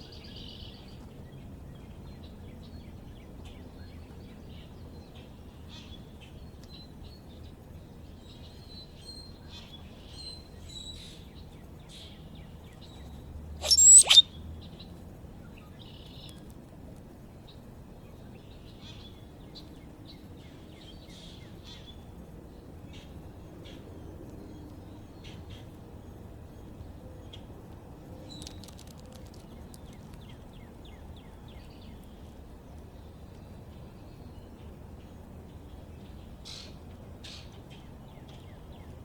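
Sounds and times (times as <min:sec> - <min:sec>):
birds chirping: 0:13.6 - 0:14.2
harsh bird call: 0:13.6 - 0:14.2.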